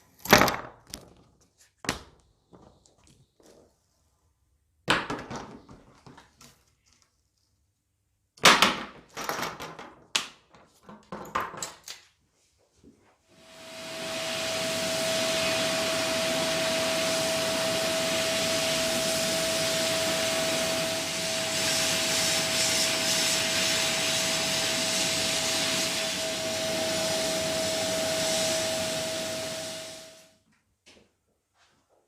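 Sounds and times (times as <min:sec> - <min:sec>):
workshop machine rushing air hiss: 0:13.3 - 0:30.3.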